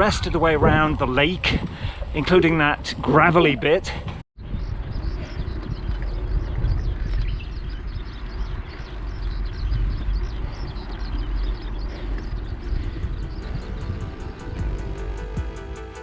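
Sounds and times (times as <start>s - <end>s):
wind rumbling on microphone: 0.0s - 16.0s
birds chirping: 4.4s - 16.0s
music with steady beat: 12.8s - 16.0s.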